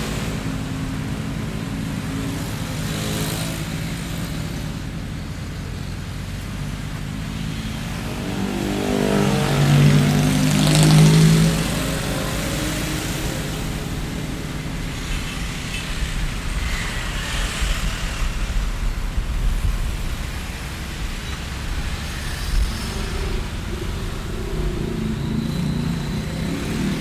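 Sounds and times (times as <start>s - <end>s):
traffic hum: 0.0s - 27.0s
vehicle passing close: 6.5s - 27.0s.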